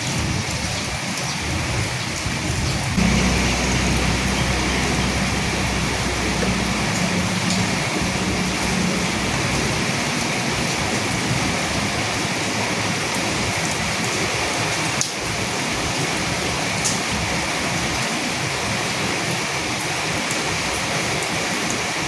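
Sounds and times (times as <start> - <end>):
steady rain falling: 0.0 - 22.0
sharp drops ticking: 3.0 - 12.2.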